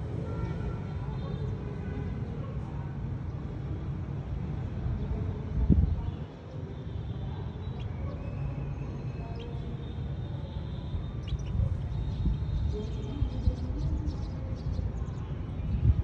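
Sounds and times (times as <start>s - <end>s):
small birds chirping: 7.6s - 16.0s.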